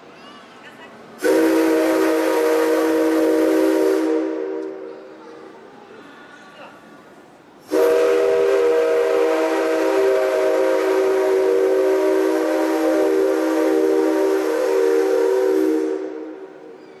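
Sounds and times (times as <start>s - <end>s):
steam locomotive whistle: 1.2s - 4.9s, 7.6s - 17.0s.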